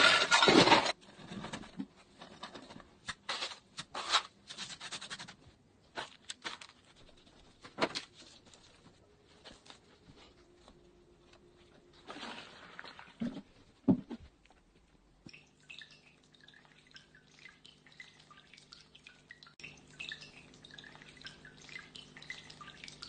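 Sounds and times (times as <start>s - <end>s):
water trickling and dripping: 15.2s - 23.0s.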